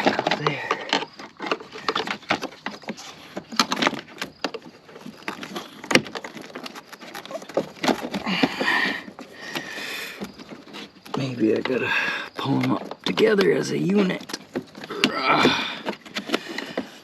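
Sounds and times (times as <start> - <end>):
plastic clicks and knocks: 0.0 - 11.8
scraping rustle: 0.0 - 17.0.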